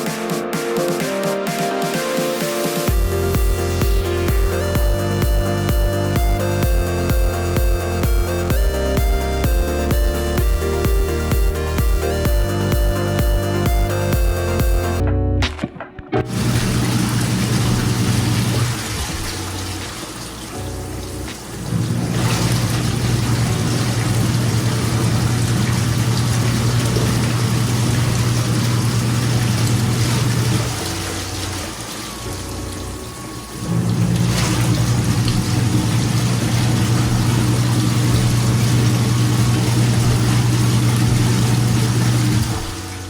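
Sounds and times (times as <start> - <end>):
washing machine motor hum: 1.8 - 15.0, 16.3 - 43.0
water churning in washing machine: 16.3 - 43.0.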